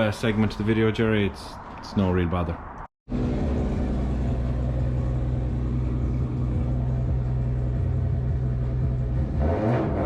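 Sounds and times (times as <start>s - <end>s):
car engine idling: 3.1s - 9.4s.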